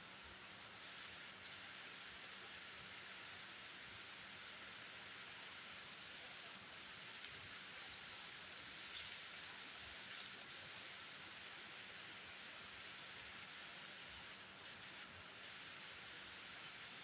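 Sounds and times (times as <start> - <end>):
faint outdoor hiss: 0.0 - 17.0
light rustles: 5.8 - 10.8.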